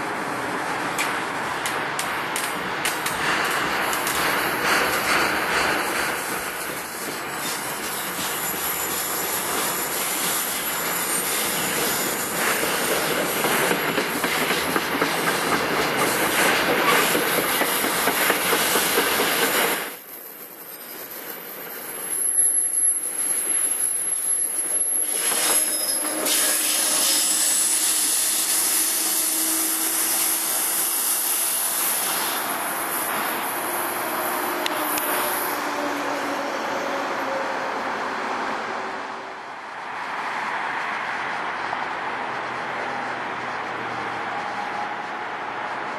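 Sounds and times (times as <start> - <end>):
steel wheels rumble and hiss: 0.0 - 45.9
train rolling past on rails: 0.0 - 45.9
high wheel squeal: 6.9 - 13.9, 19.7 - 37.9.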